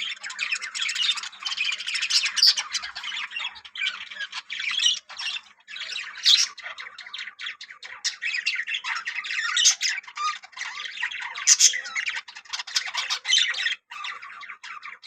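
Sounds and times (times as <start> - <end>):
budgerigars chattering and squawking: 0.0 - 15.0.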